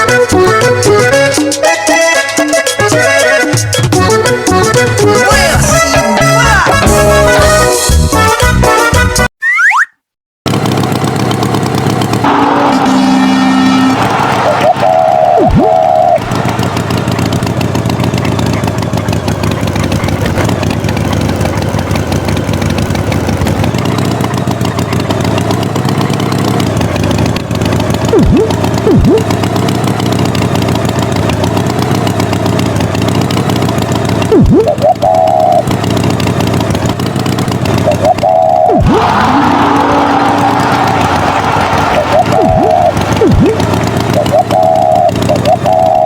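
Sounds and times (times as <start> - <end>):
cartoon tractor engine: 0.0 - 46.0
falling pitch sweeps: 12.2 - 16.7, 28.1 - 29.3, 37.9 - 46.0.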